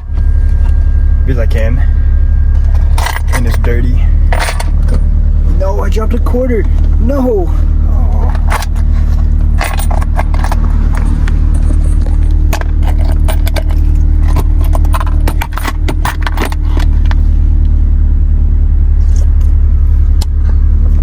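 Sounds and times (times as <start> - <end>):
car engine idling: 0.0 - 21.0
metallic clicks and jingles: 8.3 - 16.9.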